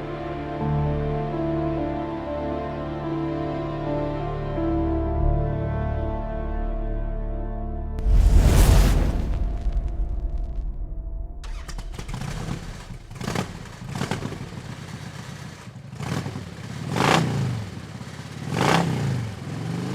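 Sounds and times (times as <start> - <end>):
background music: 0.0 - 13.5.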